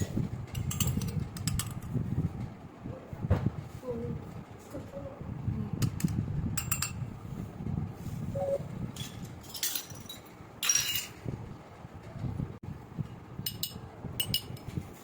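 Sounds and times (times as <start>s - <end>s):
brief tone: 8.3s - 8.7s.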